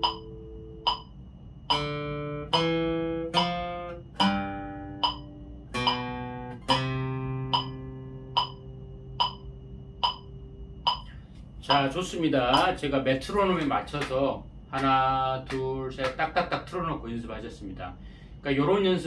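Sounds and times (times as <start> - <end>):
acoustic guitar melody: 0.0 - 1.0, 1.7 - 11.0
metronome clicking: 0.0 - 1.1, 1.7 - 10.3, 10.9 - 11.1, 11.7 - 11.9.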